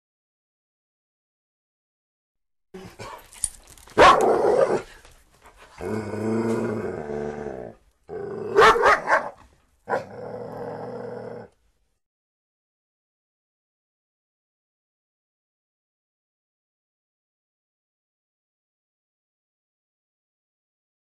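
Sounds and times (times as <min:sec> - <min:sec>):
dog barking: 0:04.0 - 0:04.9, 0:08.5 - 0:10.1
dog growling: 0:05.6 - 0:08.8, 0:09.9 - 0:11.6.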